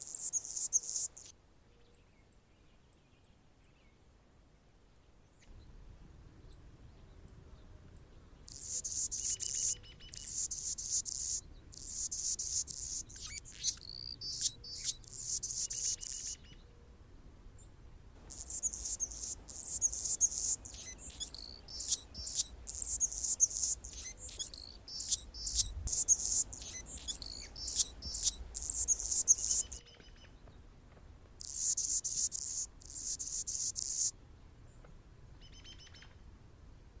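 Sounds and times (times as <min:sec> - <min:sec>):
hummingbird singing scratchy song: 0:00.0 - 0:01.3, 0:08.5 - 0:16.4, 0:18.2 - 0:29.8, 0:31.4 - 0:34.1.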